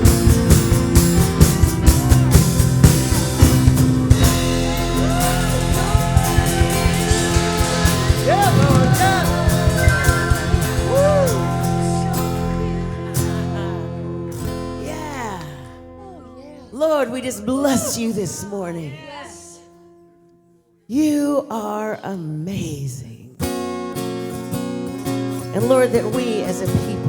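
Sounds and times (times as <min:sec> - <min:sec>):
steady drumbeat: 0:00.0 - 0:12.7
live worship band: 0:00.0 - 0:16.1
wordless vocals: 0:04.1 - 0:19.8, 0:20.9 - 0:23.4, 0:25.5 - 0:27.0.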